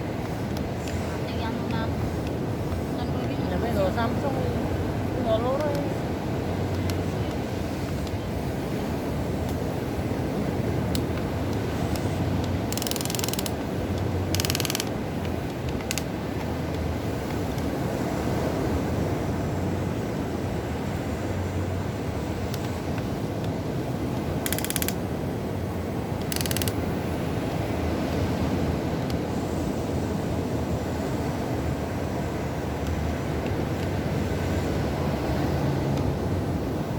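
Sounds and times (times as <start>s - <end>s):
steady rushing noise: 0.0s - 36.9s
electric motors whirring: 12.4s - 14.9s.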